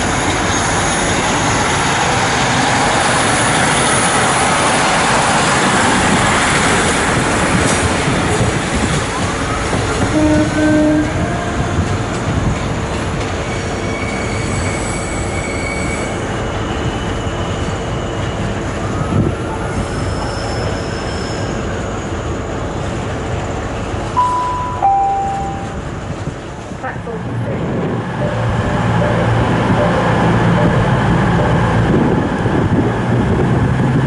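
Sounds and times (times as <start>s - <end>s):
train wheels squealing: 0.0s - 1.9s, 13.3s - 22.7s
train rumble: 0.0s - 34.0s
two-note train horn: 10.1s - 11.4s, 24.2s - 25.8s.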